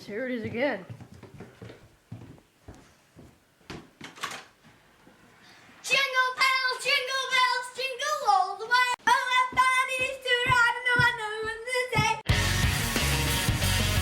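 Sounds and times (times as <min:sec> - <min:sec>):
person singing unaccompanied: 0:05.9 - 0:12.3
loud rock music: 0:12.3 - 0:14.0.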